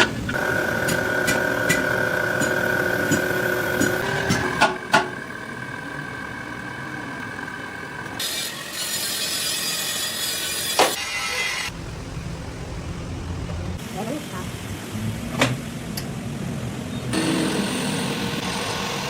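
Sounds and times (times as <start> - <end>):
machinery whine: 0.0 - 14.6, 16.0 - 19.0
low rumble: 11.7 - 13.8.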